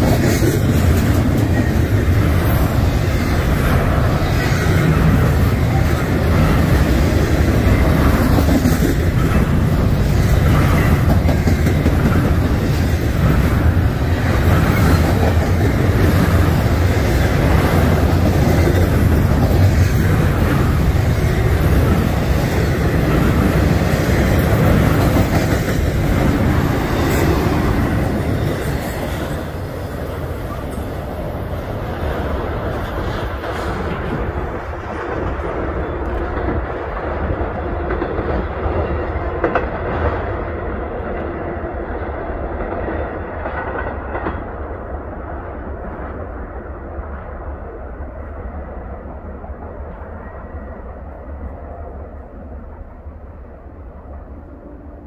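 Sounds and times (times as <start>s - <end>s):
wheels clacking over rail joints: 0.0s - 31.1s
freight train rumbling past: 0.0s - 55.0s.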